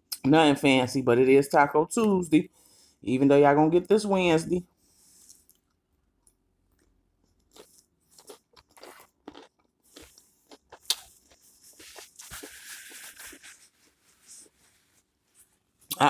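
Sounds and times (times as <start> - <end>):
crunching a tortilla chip: 6.7 - 13.4
paper napkin rustling: 11.5 - 15.5.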